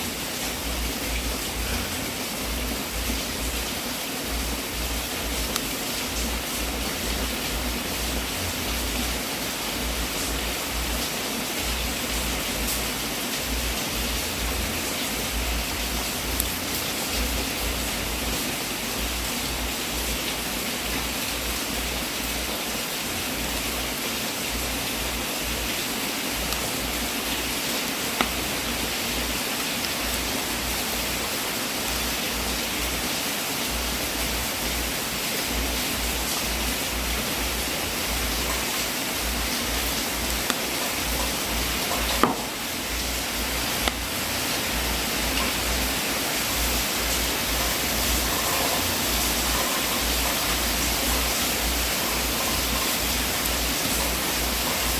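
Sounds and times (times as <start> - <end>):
wood fire hissing: 0.0 - 54.9
wood fire popping: 28.1 - 28.8, 36.4 - 44.1.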